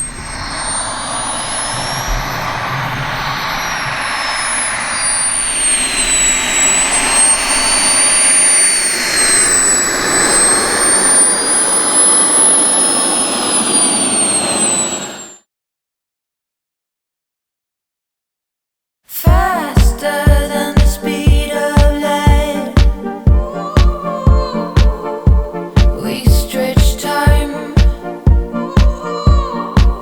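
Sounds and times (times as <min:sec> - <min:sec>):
model jet turbine roar and whine: 0:00.0 - 0:15.5.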